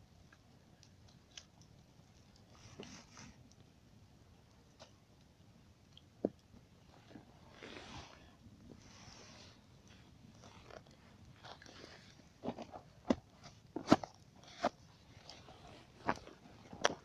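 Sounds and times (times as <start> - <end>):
campfire crackling: 0.0 - 17.0
burning wood popping: 4.4 - 17.0.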